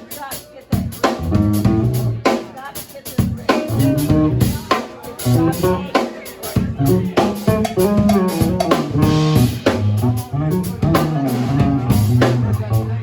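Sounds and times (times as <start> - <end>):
drum kit hits: 0.8 - 2.5, 3.2 - 12.9
walking bass line: 1.2 - 2.3, 3.6 - 6.0, 6.6 - 13.0
guitar: 3.3 - 13.0.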